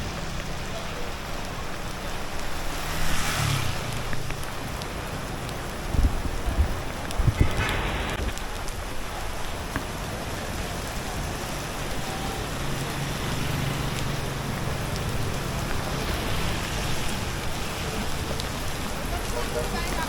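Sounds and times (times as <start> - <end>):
passing vehicle engine hum: 0.0 - 5.7
rain falling on street: 0.0 - 20.0.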